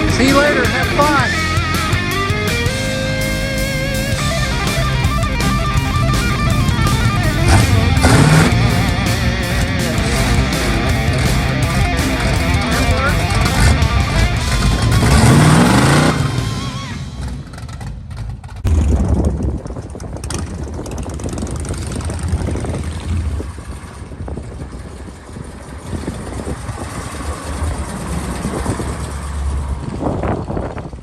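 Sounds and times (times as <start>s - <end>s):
music: 0.0s - 15.1s
vehicle engine rumbling: 0.0s - 31.0s.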